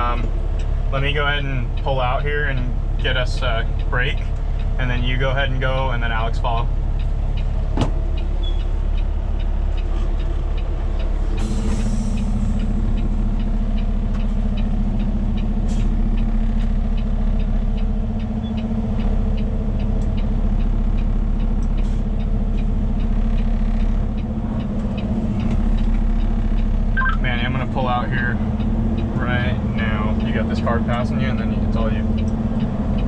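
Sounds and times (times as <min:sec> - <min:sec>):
diesel truck engine running: 0:00.0 - 0:33.0
turn signal ticking: 0:00.0 - 0:33.0
air brakes hissing: 0:11.3 - 0:12.7, 0:15.6 - 0:16.0.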